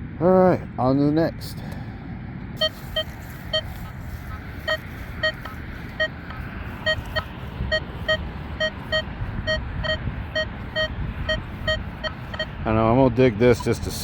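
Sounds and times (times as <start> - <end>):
wind rumbling on microphone: 2.0 - 14.0
metal detector beeps: 2.6 - 12.6.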